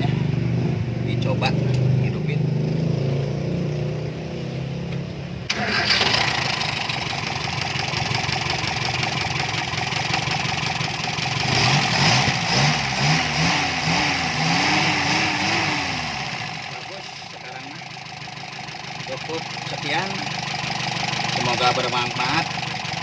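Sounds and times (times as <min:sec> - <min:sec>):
car engine running: 0:05.0 - 0:23.0
starter motor cranking: 0:05.5 - 0:07.2.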